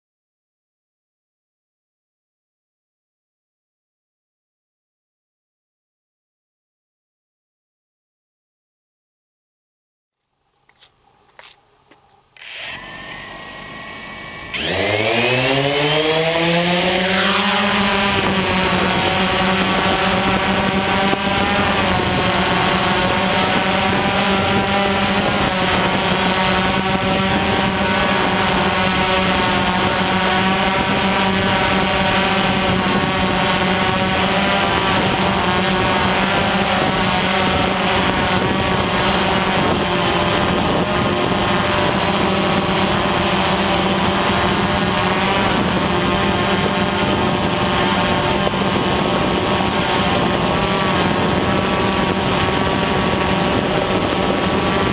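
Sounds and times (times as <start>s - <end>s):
drone motors and propellers spinning: 12.4s - 54.9s.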